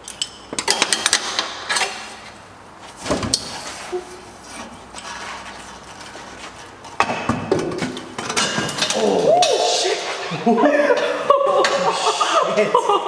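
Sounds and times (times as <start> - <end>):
metal tools clinking: 0.0 - 2.3, 8.0 - 9.6.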